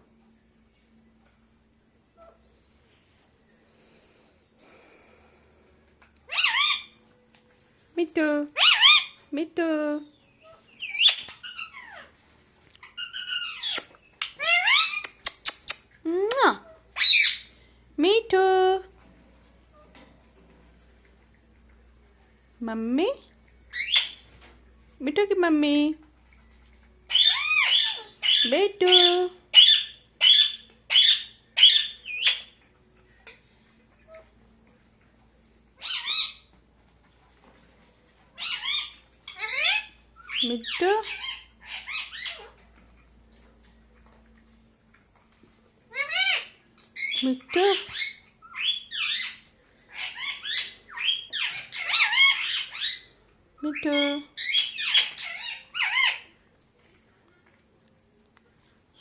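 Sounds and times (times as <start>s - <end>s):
parakeet squawking and whistling: 6.3s - 7.0s, 8.6s - 9.2s, 10.4s - 12.1s, 12.8s - 15.8s, 17.0s - 17.5s, 23.7s - 24.2s, 27.1s - 32.6s, 35.8s - 36.4s, 38.4s - 42.5s, 45.9s - 53.2s, 53.8s - 56.3s.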